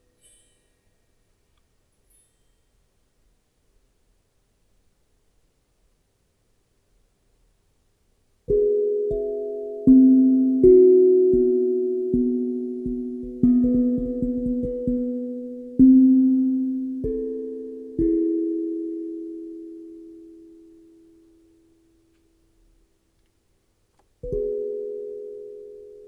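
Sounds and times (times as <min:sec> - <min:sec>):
steel tongue drum notes: 0:08.5 - 0:20.2, 0:24.2 - 0:26.0.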